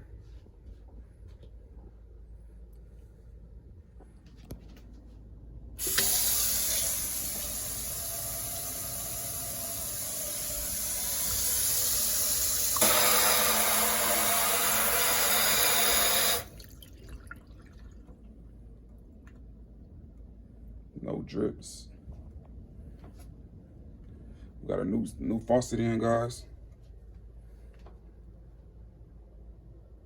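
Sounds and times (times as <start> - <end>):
water running into sink: 5.8 - 17.9.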